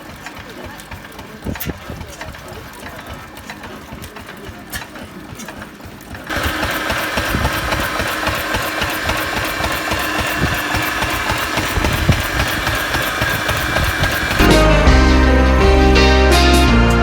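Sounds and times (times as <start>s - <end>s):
tractor engine idling: 0.0s - 16.7s.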